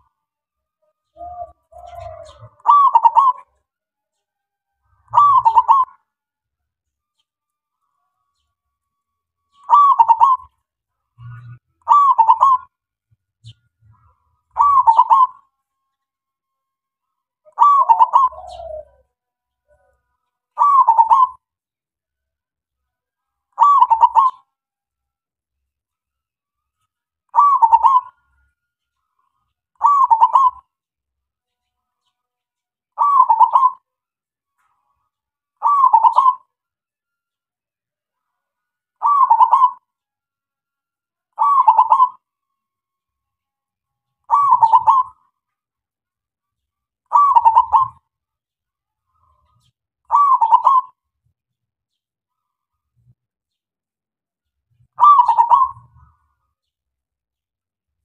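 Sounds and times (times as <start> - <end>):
dove trilling coos: 1.0 - 3.6, 5.0 - 6.0, 9.5 - 10.6, 11.2 - 12.7, 14.0 - 15.5, 17.4 - 19.1, 20.6 - 21.4, 23.6 - 24.4, 27.3 - 28.2, 29.8 - 30.7, 33.0 - 33.9, 35.6 - 36.5, 39.0 - 39.9, 41.4 - 42.3, 44.3 - 45.3, 47.1 - 48.1, 49.5 - 51.0, 54.9 - 56.7.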